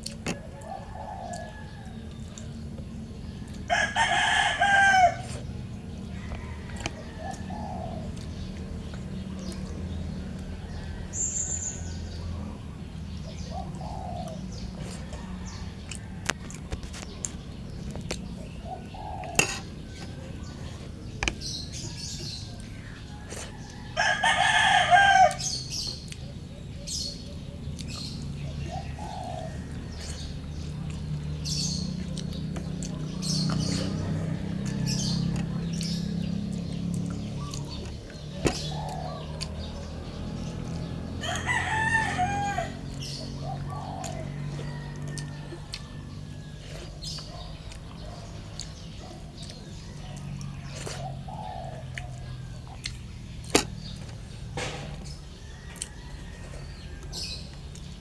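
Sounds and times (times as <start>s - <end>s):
small birds chirping: 0.0s - 58.0s
rooster crowing: 3.6s - 5.4s, 21.4s - 25.7s, 41.2s - 46.4s, 55.1s - 57.6s.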